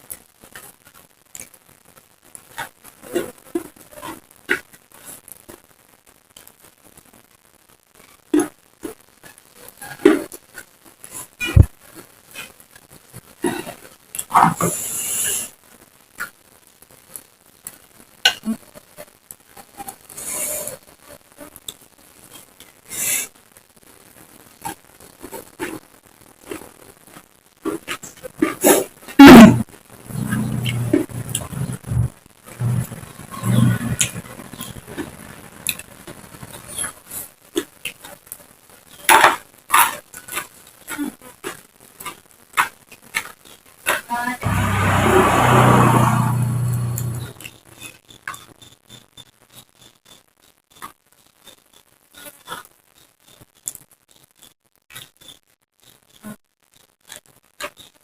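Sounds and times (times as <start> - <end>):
vehicle engine humming: 30.0 - 34.2, 44.4 - 47.4.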